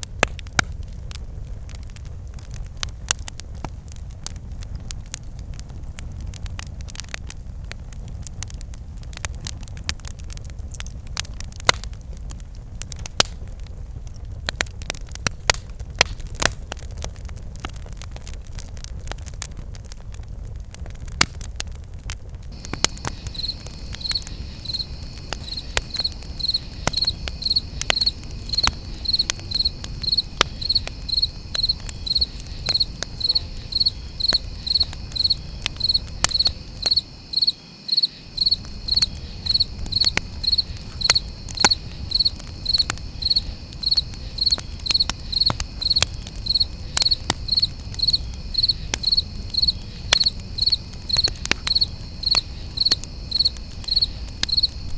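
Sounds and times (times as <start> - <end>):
campfire crackling and popping: 0.0 - 54.9
cricket chirping: 22.5 - 54.9.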